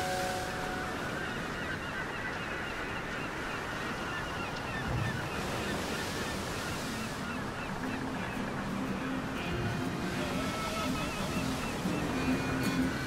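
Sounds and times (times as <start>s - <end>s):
waves washing: 0.0s - 13.0s
wind: 0.0s - 13.0s.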